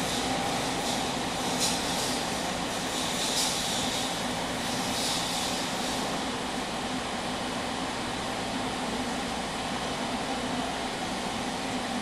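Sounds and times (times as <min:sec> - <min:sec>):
hissy rushes: 0:00.0 - 0:06.2
air-conditioning noise: 0:00.0 - 0:12.0
electric train hum: 0:00.0 - 0:12.0
train rolling noise: 0:00.0 - 0:12.0.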